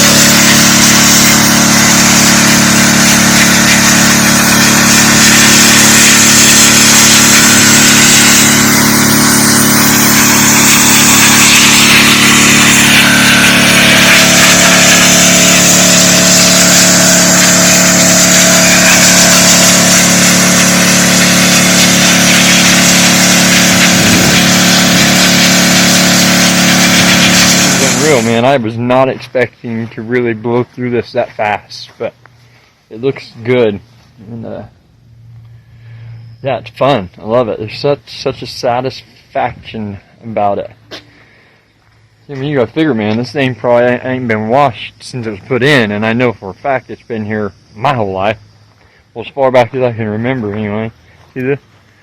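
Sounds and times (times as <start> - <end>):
high-pressure water jet hissing: 0.0 - 28.4
pressure washer engine running: 0.0 - 28.7.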